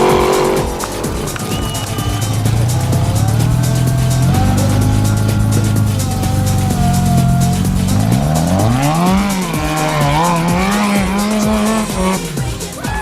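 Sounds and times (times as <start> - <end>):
truck engine revving hard: 0.0 - 12.8.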